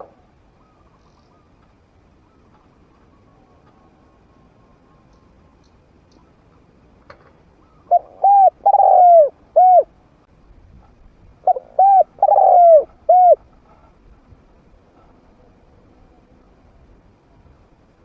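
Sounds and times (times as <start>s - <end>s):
dove cooing: 7.6s - 9.9s, 11.4s - 13.5s.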